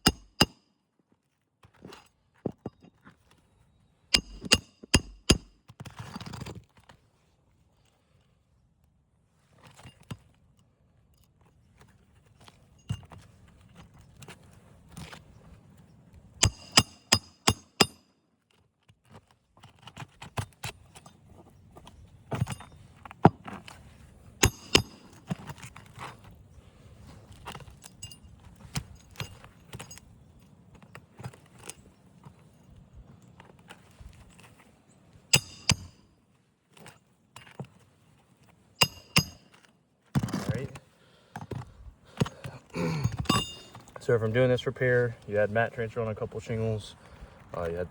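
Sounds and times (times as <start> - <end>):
hammer tapping metal tool: 0.0 - 0.6, 4.1 - 5.5, 16.4 - 18.0, 24.4 - 25.2, 35.3 - 36.0, 38.8 - 39.6, 43.0 - 43.9.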